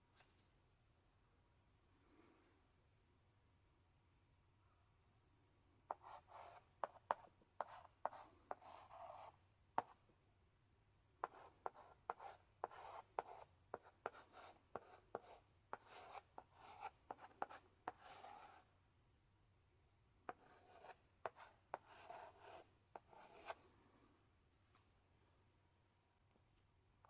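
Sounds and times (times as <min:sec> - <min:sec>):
chalk scratching on blackboard: 0:05.9 - 0:10.0, 0:11.2 - 0:18.7, 0:20.3 - 0:23.6
chalk tapping on blackboard: 0:05.9 - 0:10.0, 0:11.2 - 0:18.6, 0:20.3 - 0:23.6.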